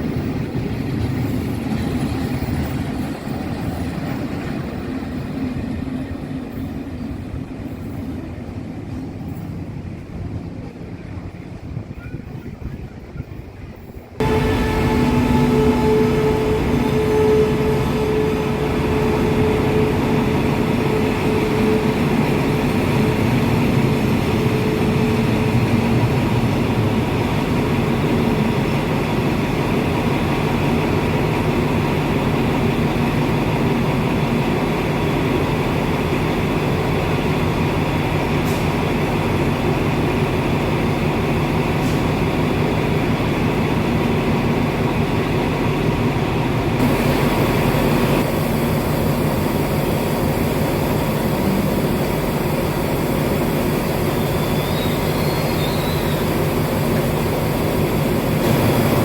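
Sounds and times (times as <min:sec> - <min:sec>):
train rumbling on track: 0:00.0 - 0:59.0
humming tone: 0:14.2 - 0:25.6.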